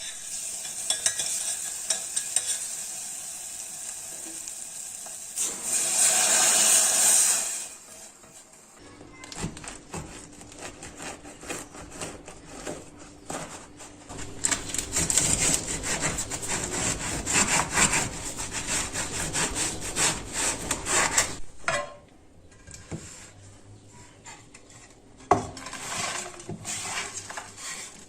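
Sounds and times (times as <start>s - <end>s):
knife sawing on wooden board: 10.5s - 13.8s, 14.9s - 21.4s.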